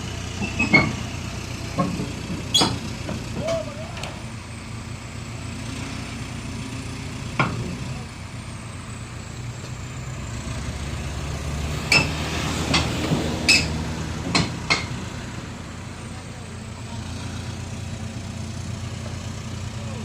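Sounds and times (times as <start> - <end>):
heavy vehicle engine running: 0.0 - 20.0
sharp metallic clanks: 11.9 - 15.1.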